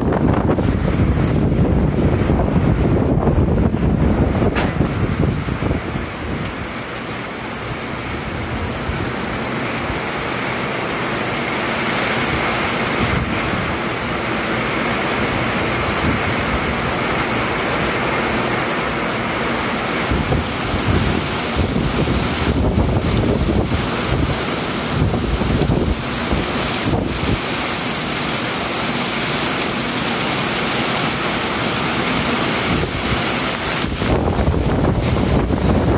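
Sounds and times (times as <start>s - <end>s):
wind buffeting microphone: 0.0s - 10.2s, 12.1s - 18.0s, 19.9s - 27.9s, 32.2s - 35.9s
heavy rain pouring: 0.0s - 35.9s.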